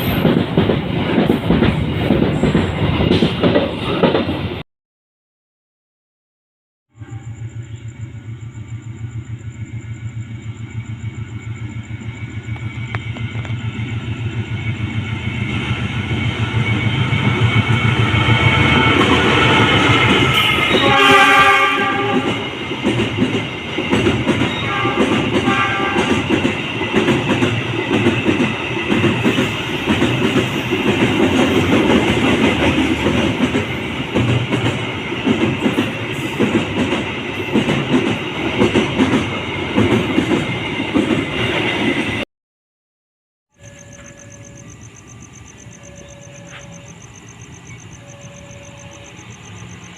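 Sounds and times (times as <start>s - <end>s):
diesel locomotive engine: 0.0s - 4.6s, 7.0s - 42.2s, 43.5s - 49.9s
train wheels clickety-clack: 0.0s - 4.6s, 12.4s - 42.2s
train horn blasts: 6.9s - 7.4s, 20.3s - 22.5s, 24.5s - 26.3s, 45.7s - 47.0s, 47.9s - 49.3s.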